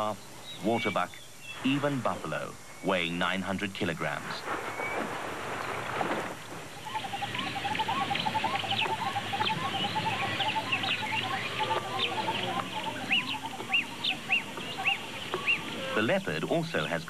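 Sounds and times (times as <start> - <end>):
steady background hiss: 0.0 - 17.0
birds chirping and whistling: 6.6 - 17.0.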